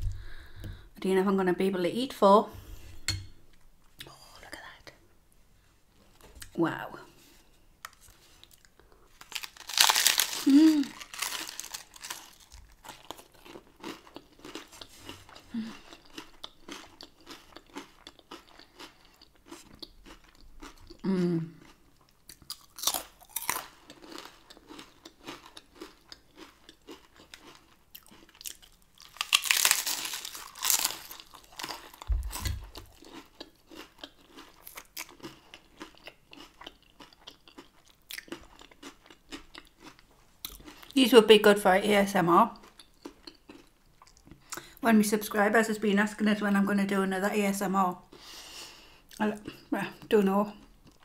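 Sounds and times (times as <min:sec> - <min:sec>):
person chewing crunchy food: 0:07.8 - 0:41.0, 0:42.6 - 0:44.7.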